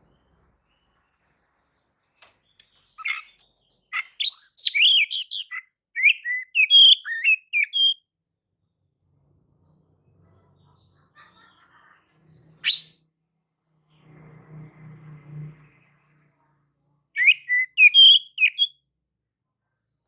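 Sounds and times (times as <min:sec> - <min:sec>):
bird singing whistles and chirps: 0:04.0 - 0:08.0, 0:12.6 - 0:12.9, 0:17.2 - 0:18.7.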